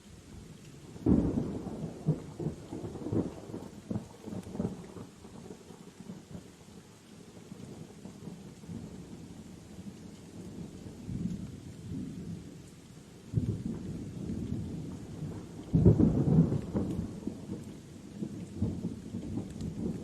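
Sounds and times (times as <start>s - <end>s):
steady rain: 0.0s - 20.0s
rolling thunder: 13.3s - 20.0s.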